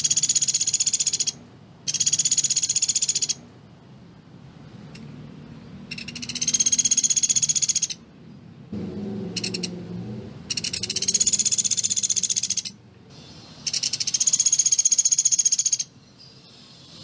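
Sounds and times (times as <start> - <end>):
woodpecker rattling trill: 0.0 - 3.4, 5.9 - 8.0, 9.3 - 9.8, 10.5 - 15.9.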